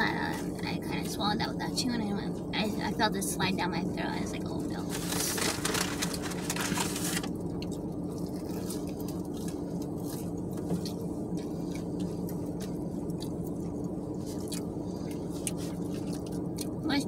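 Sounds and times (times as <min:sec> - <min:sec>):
low hum in car cabin: 0:00.0 - 0:17.0
people chewing: 0:07.4 - 0:16.8.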